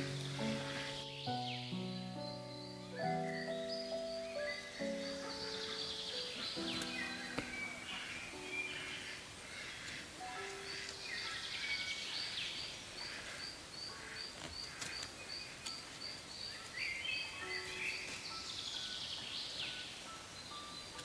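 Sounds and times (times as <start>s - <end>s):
gliding bird calls: 2.9s - 14.2s.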